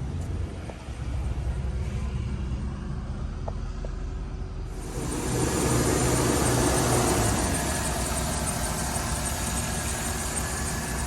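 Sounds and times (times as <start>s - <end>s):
car engine idling: 4.6s - 11.0s.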